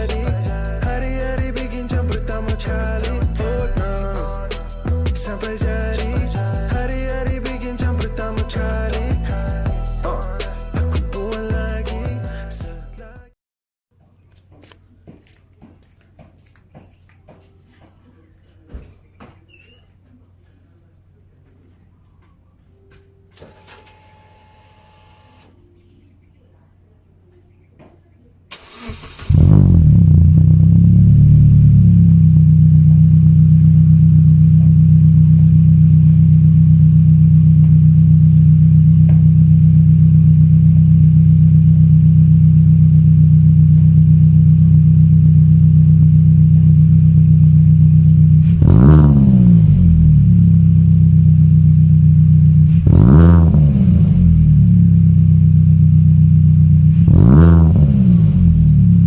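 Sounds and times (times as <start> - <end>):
car engine idling and revving: 0.0 - 10.4, 28.6 - 59.0.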